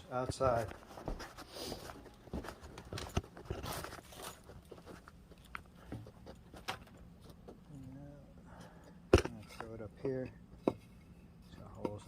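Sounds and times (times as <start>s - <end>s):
faint crunching and rustling: 0.0s - 10.3s
small knocks of handling things: 1.9s - 7.6s, 9.1s - 11.0s.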